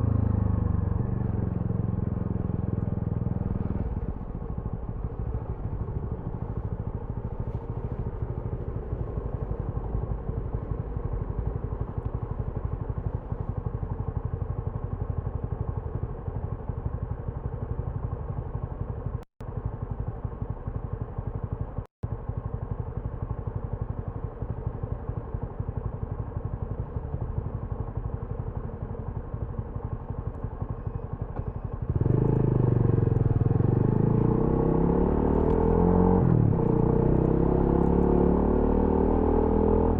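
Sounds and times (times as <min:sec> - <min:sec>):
motorcycle engine revving: 0:00.0 - 0:13.8, 0:29.9 - 0:39.9.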